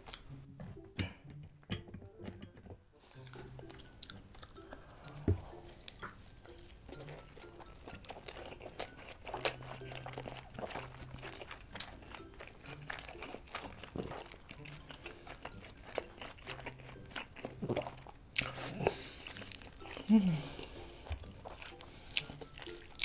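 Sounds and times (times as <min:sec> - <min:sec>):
wet chewing mouth noises: 0:03.2 - 0:23.0
closed-mouth hums: 0:17.4 - 0:22.8.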